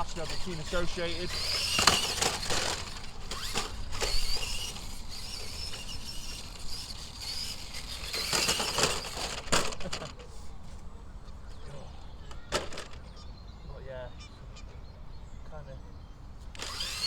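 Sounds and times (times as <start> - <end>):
toy truck electric motor whining: 0.0 - 10.5, 12.3 - 13.1, 16.5 - 17.0.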